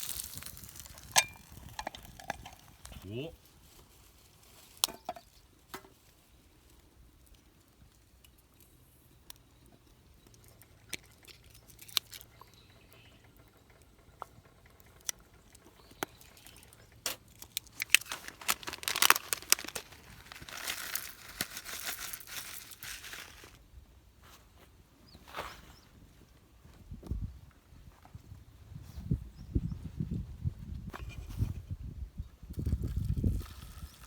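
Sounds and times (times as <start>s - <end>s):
packaging crinkling and crumpling: 0.0s - 2.9s, 11.0s - 12.3s, 16.2s - 23.6s
handling noises: 16.0s - 23.6s.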